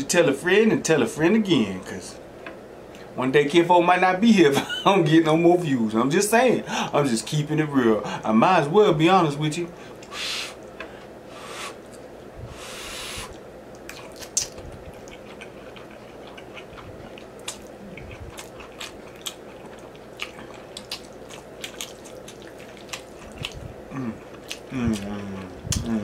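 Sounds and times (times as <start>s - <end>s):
wet chewing with mouth clicks: 13.0s - 26.0s.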